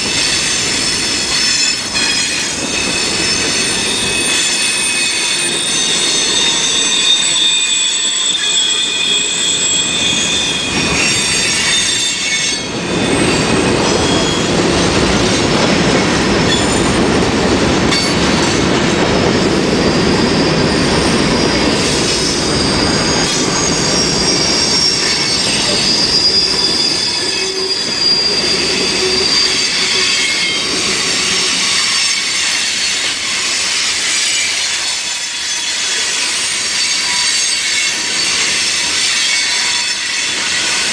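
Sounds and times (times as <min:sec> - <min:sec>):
train wheels squealing on rails: 0:00.0 - 0:40.9
heavy rolling rumble: 0:13.0 - 0:26.7.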